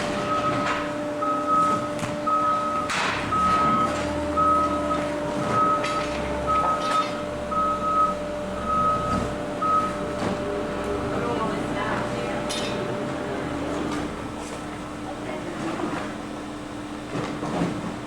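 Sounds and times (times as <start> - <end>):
back-up alarm beeping: 0.0 - 13.2
machinery humming: 0.0 - 18.0.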